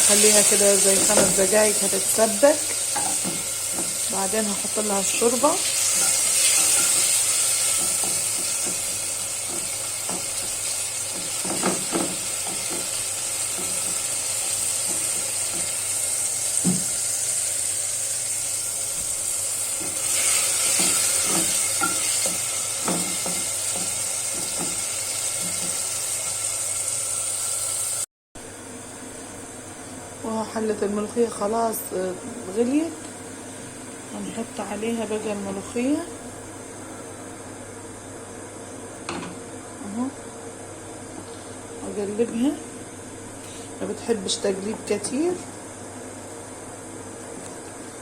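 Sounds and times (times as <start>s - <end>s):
food sizzling in a pan: 0.0s - 28.1s
spoon knocking and scraping: 20.7s - 24.8s.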